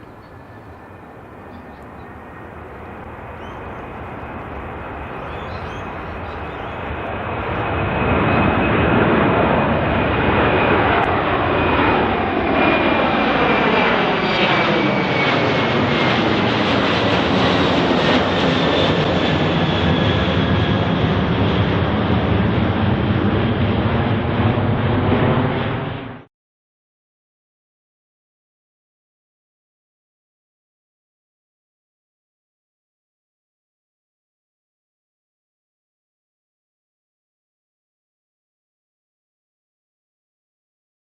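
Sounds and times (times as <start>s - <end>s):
jet engines high whine: 0.0s - 26.3s.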